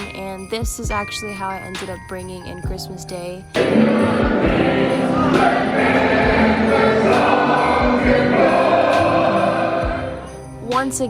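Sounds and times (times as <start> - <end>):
group singing carol: 3.6 - 10.5.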